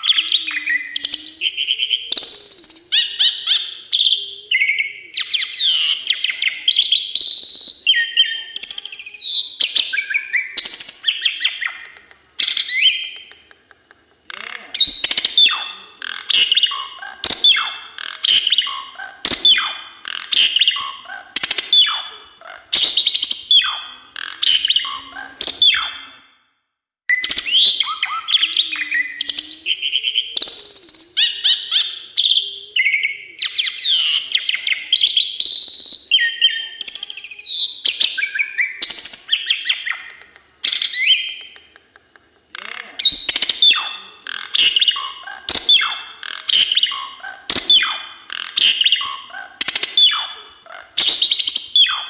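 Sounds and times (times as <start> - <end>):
starling singing whistles: 0.0 - 11.8, 14.3 - 26.2, 27.1 - 41.4, 42.6 - 52.0.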